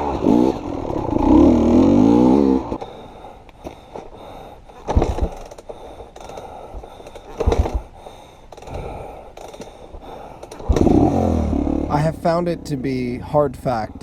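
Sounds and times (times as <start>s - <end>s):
person breathing hard: 2.7s - 11.2s.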